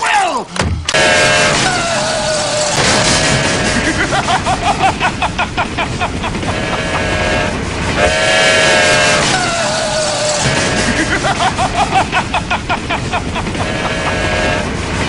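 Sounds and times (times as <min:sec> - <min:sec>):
train whistle blasts: 0:00.9 - 0:03.4, 0:06.5 - 0:11.4, 0:13.6 - 0:14.8.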